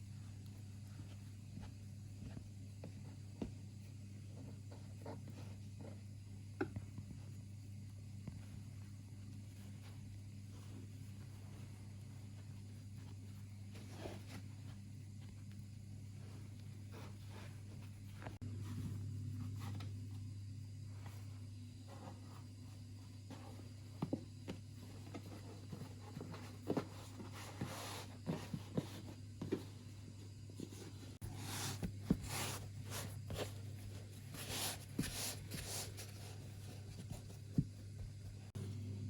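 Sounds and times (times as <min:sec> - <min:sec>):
rustling: 0:00.0 - 0:19.9, 0:30.5 - 0:38.6
steady low hum: 0:00.0 - 0:39.0.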